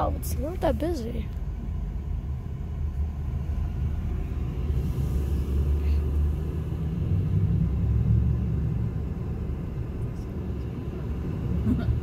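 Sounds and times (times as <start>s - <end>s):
car driving slowly rumble: 0.0s - 12.0s.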